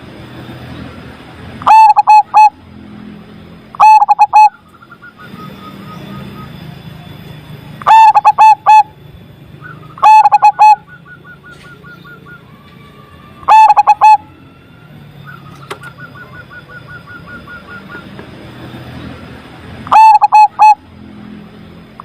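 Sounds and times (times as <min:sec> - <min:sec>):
rapid high repeated bird notes: 0:01.6 - 0:02.6, 0:03.8 - 0:06.6, 0:07.8 - 0:12.4, 0:13.5 - 0:14.2, 0:19.9 - 0:20.9
dove cooing: 0:01.7 - 0:02.6, 0:03.8 - 0:04.6, 0:07.9 - 0:08.9, 0:10.0 - 0:11.7, 0:13.5 - 0:14.2, 0:19.8 - 0:20.8.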